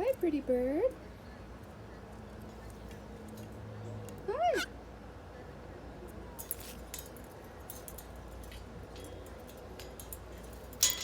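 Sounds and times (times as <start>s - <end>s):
light clicks and scrapes: 6.4s - 11.0s.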